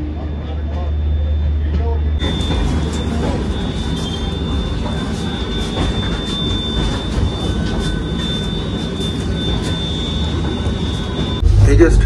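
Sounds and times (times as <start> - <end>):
high-pitched whine: 0.0 - 12.0
train rumbling and rattling: 0.0 - 12.0.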